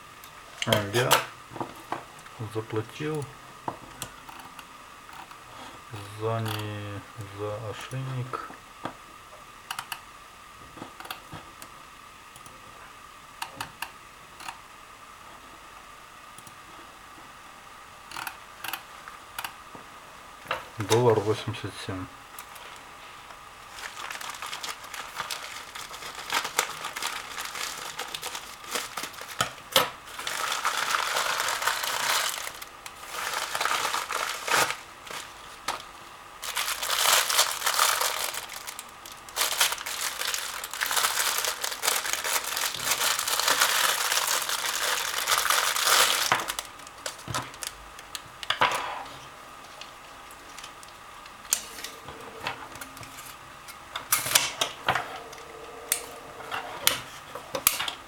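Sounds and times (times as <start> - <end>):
packaging crinkling and tearing: 23.6 - 48.2.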